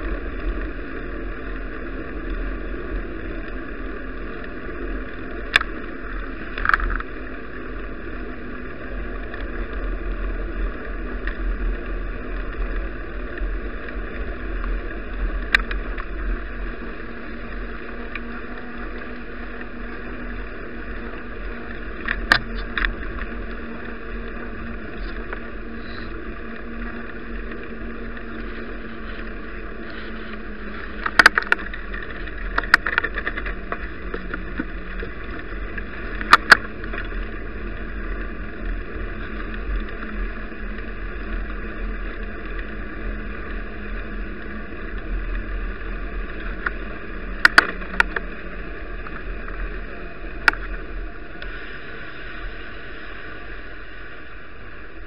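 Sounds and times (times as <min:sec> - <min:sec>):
bicycle ride rumble: 0:00.0 - 0:55.0.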